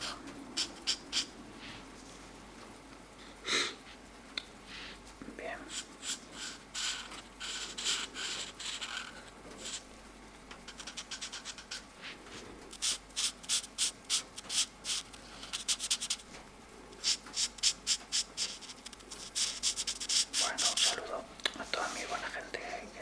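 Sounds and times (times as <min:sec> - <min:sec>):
marker scratching on paper: 0:00.0 - 0:01.8, 0:05.7 - 0:09.9, 0:10.7 - 0:16.3, 0:17.0 - 0:22.8.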